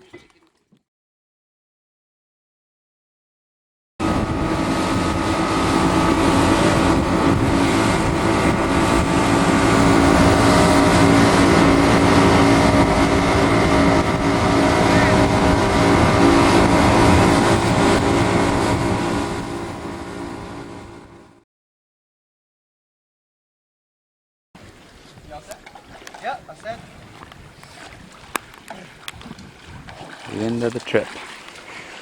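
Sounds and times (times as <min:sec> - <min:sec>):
rushing water: 0:04.0 - 0:21.2, 0:24.6 - 0:32.0
rushing wind: 0:04.0 - 0:21.3, 0:24.6 - 0:30.4
motorboat engine hum: 0:04.0 - 0:21.4, 0:24.6 - 0:32.0.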